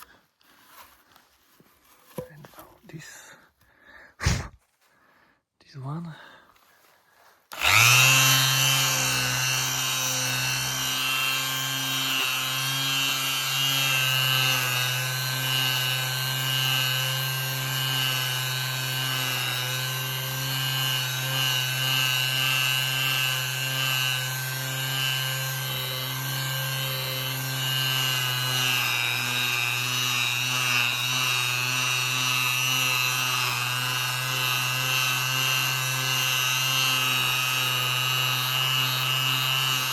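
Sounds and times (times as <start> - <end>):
orbital sander running: 7.5 - 39.9.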